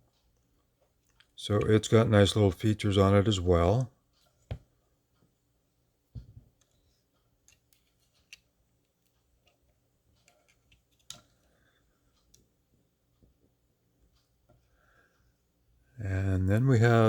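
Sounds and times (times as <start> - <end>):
faint clicks and taps: 0.1 - 1.8, 4.0 - 5.4, 6.1 - 14.8.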